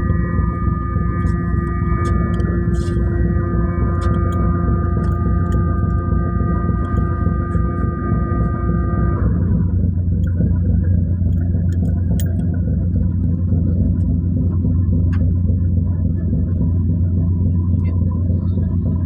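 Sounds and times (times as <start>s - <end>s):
ferry engine drone: 0.0s - 19.0s.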